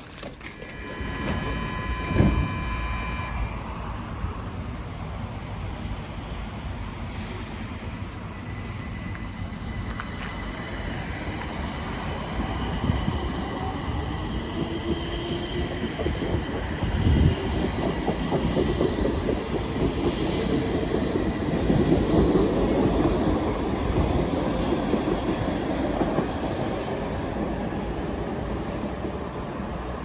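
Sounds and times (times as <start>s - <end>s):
train wheels and motors rumbling: 0.0s - 30.0s
faint rising whine: 0.6s - 5.0s
steady high tones: 0.6s - 5.0s.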